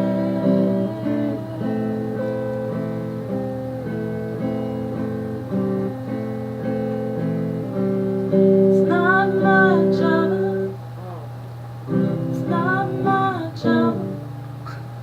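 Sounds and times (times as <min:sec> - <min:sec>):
person singing: 0:00.0 - 0:02.7, 0:08.6 - 0:11.3, 0:12.1 - 0:14.3
acoustic guitar strumming chords: 0:00.0 - 0:15.0.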